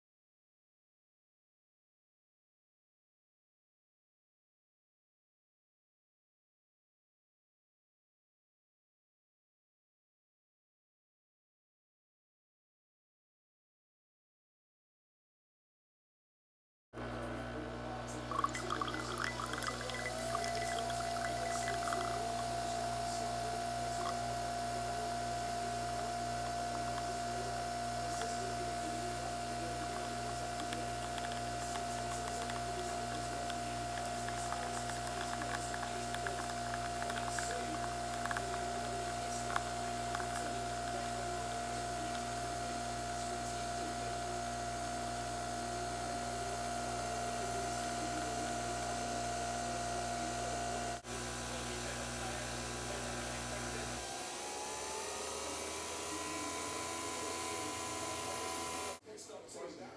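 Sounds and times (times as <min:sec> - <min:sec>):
mechanical hum with whine: 0:17.0 - 0:59.0.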